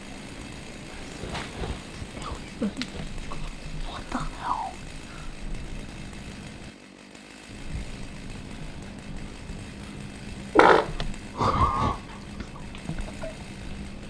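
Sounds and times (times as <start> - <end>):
chainsaw running: 0.0 - 14.0.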